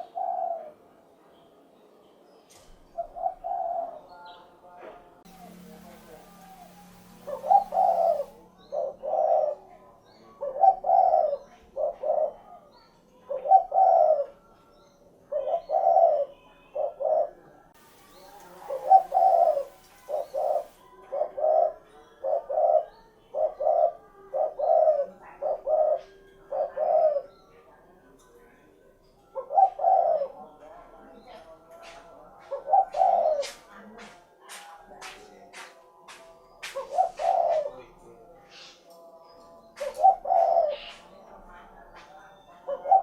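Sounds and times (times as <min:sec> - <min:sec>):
dove cooing: 0:00.0 - 0:00.8, 0:03.0 - 0:04.1, 0:05.3 - 0:14.6, 0:15.2 - 0:27.4, 0:29.2 - 0:34.1, 0:36.6 - 0:37.9, 0:39.8 - 0:43.0
small birds chirping: 0:01.4 - 0:43.0.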